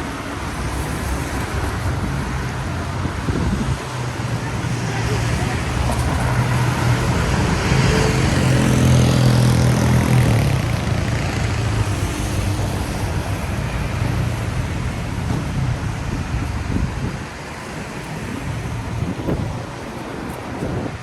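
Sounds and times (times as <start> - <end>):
tyres hissing on wet road: 0.0 - 20.9
vehicle engine passing: 4.9 - 13.4.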